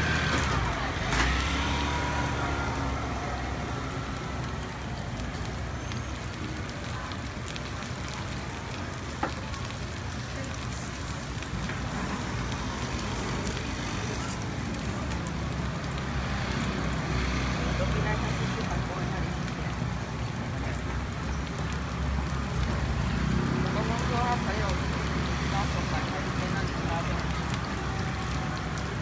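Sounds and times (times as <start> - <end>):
batter sizzling in oil: 0.0 - 29.0.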